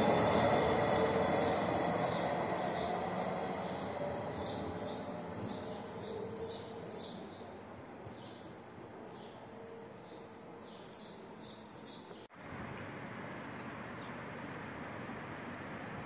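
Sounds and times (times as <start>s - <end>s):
electric train running: 0.0s - 5.9s
birds chirping: 0.0s - 7.5s.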